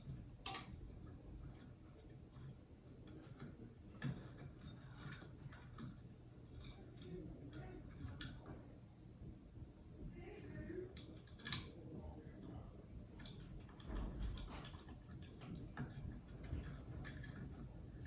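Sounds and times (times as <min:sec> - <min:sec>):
clicks and taps of hard parts: 0:00.0 - 0:00.8, 0:11.0 - 0:11.8
low steady hum: 0:00.0 - 0:18.0.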